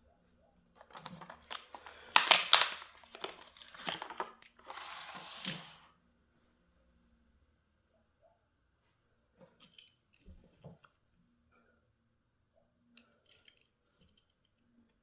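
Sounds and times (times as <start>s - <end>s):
sharp plastic cracks: 0.8s - 4.5s
plastic packaging crinkling and tearing: 0.8s - 5.6s.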